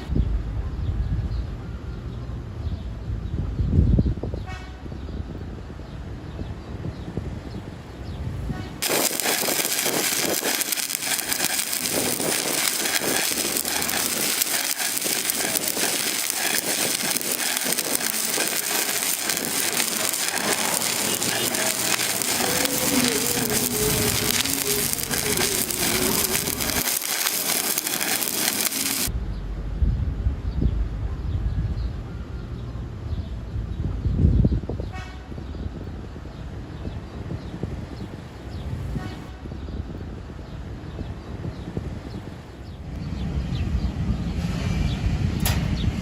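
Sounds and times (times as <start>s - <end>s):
welding arc crackling and sizzling: 8.8s - 29.2s.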